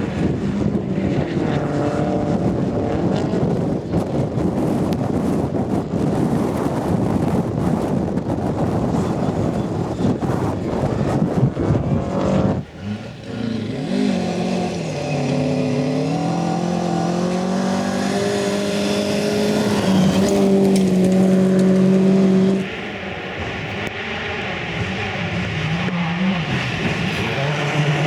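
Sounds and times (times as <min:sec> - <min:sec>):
rally car engine accelerating: 0:11.5 - 0:22.8, 0:23.8 - 0:28.0
loud noisy rush: 0:12.6 - 0:28.0.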